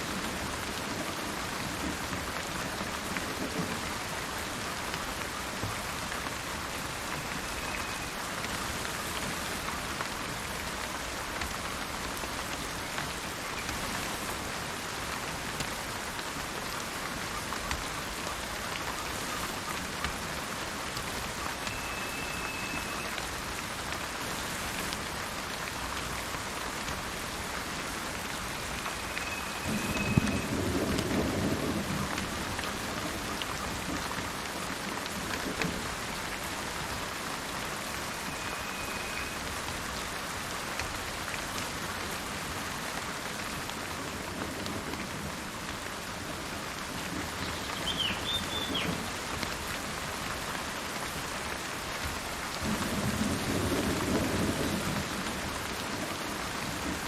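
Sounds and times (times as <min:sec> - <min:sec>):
steady rain falling: 0:00.0 - 0:57.0
thunder rumble: 0:29.4 - 0:33.1
high bird chirps: 0:47.6 - 0:48.9.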